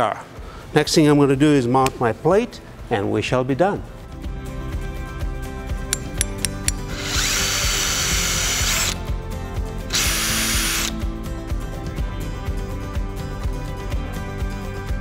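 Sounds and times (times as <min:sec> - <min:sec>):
power drill driving screws: 0:06.9 - 0:09.0, 0:09.9 - 0:11.0.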